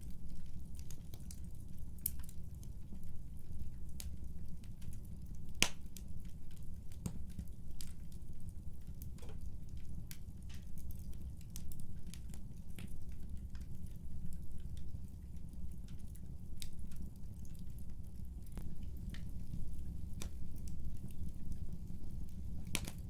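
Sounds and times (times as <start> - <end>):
fire crackles and pops: 0.0 - 23.0
low rumble of flames: 0.0 - 23.0.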